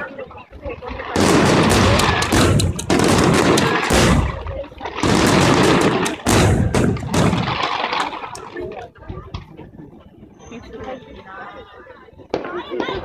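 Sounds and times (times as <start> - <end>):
firework bangs and crackling: 1.1 - 8.6.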